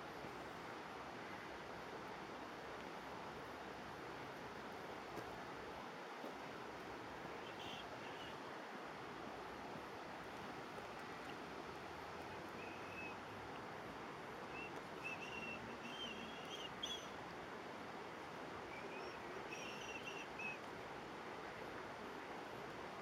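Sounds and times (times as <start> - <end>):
background hiss: 0.0 - 23.0
songbird whistling: 12.5 - 13.2, 14.5 - 17.2, 18.7 - 20.6.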